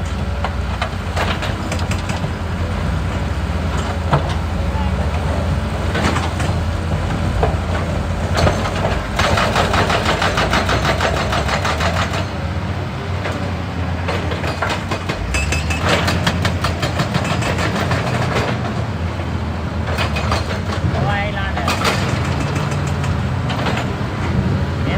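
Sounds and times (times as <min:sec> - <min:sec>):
hydraulic breaker hammering rock: 0:00.0 - 0:12.4, 0:14.0 - 0:18.6
excavator diesel engine running: 0:00.0 - 0:24.9.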